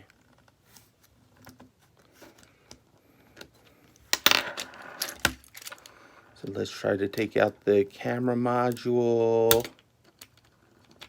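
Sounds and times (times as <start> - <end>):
small hard parts clattering: 3.4 - 6.0.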